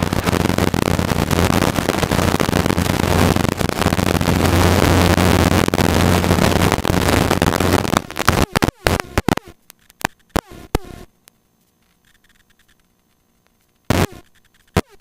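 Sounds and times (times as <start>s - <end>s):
rushing cabin noise with crackle: 0.0s - 10.8s.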